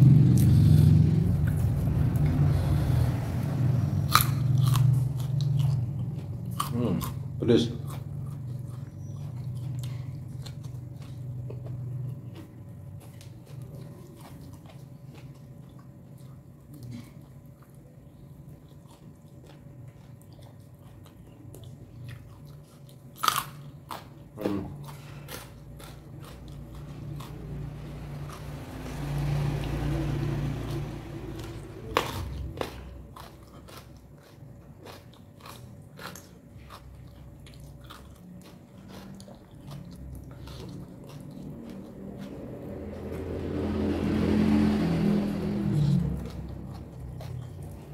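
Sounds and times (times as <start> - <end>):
sharp crunchy bites: 0.0 - 7.2, 23.1 - 37.0
person chewing crunchy food: 0.0 - 44.8, 45.4 - 47.9.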